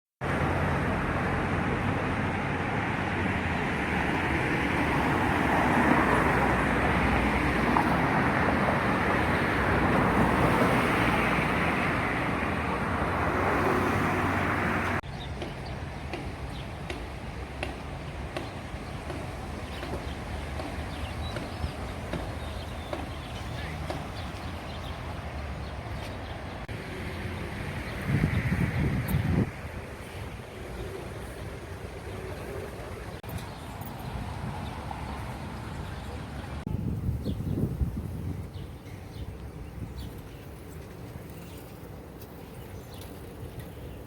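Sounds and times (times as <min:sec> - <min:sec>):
passing vehicles rushing: 0:00.2 - 0:15.0, 0:19.1 - 0:44.0
quiet street background: 0:00.2 - 0:44.0.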